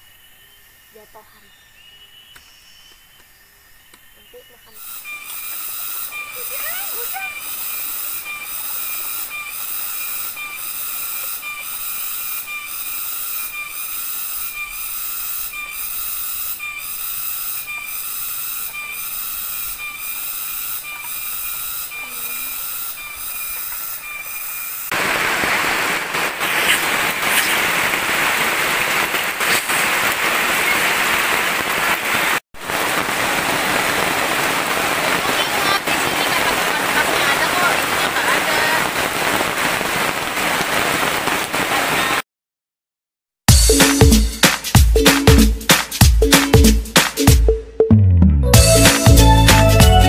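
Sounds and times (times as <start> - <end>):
heavy rain falling on forest: 4.8 - 14.0, 24.9 - 42.2.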